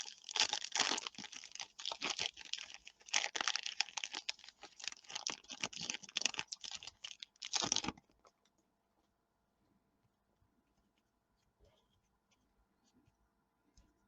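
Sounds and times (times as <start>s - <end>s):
cards and wrappers rustling: 0.0s - 8.1s.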